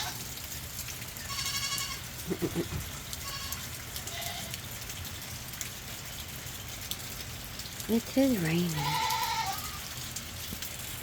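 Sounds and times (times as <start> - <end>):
rain falling: 0.0 - 11.0
goats bleating: 1.3 - 4.5, 8.7 - 9.8.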